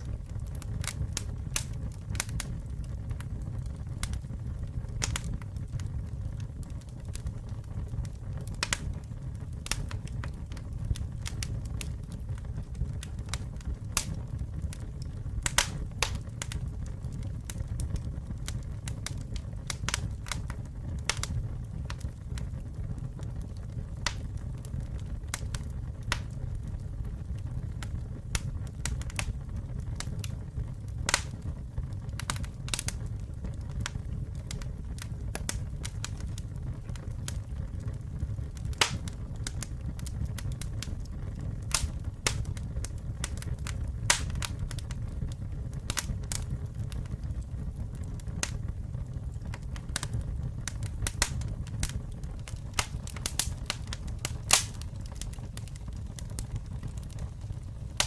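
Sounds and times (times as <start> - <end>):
burning wood crackling: 0.0 - 58.0
campfire flames rumbling: 0.0 - 58.0.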